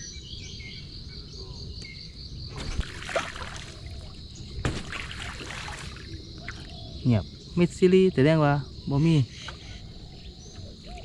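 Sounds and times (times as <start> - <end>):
crickets chirring: 0.0 - 11.0
paddle strokes splashing: 2.5 - 6.6
low water rumble: 2.5 - 6.8.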